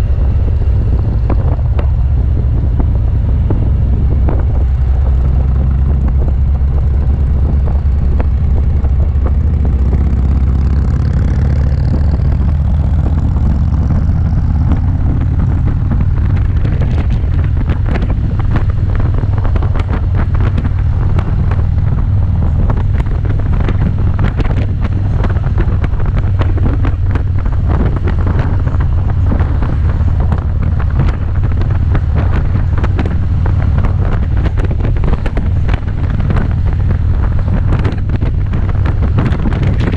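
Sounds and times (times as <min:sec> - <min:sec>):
motorcycle engine drone: 0:00.0 - 0:39.9
wind buffeting microphone: 0:00.0 - 0:39.9.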